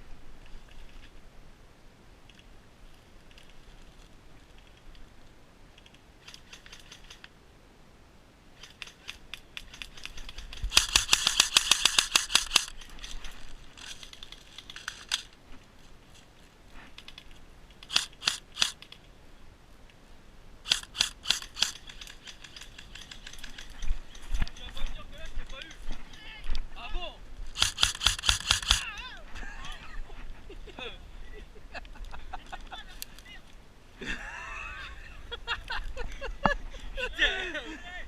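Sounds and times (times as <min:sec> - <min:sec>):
airsoft guns firing: 0:09.8 - 0:12.8, 0:17.9 - 0:18.8, 0:20.7 - 0:22.4, 0:27.5 - 0:28.9.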